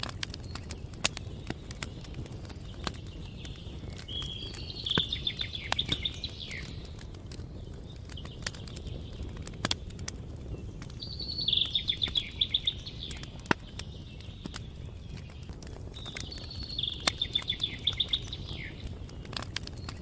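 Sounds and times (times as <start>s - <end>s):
campfire crackling and popping: 0.0s - 20.0s
songbird trilling: 3.2s - 6.8s, 11.0s - 14.9s, 16.0s - 18.9s.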